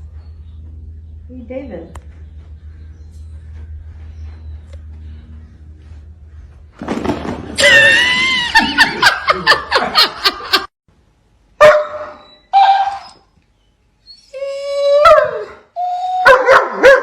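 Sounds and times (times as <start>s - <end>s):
person laughing loudly: 7.6s - 10.7s.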